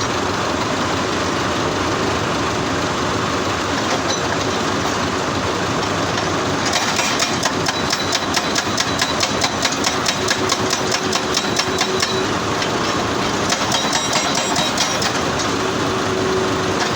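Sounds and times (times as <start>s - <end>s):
diesel engine running: 0.0s - 16.9s
hydraulic hammer pounding stone: 6.2s - 15.6s.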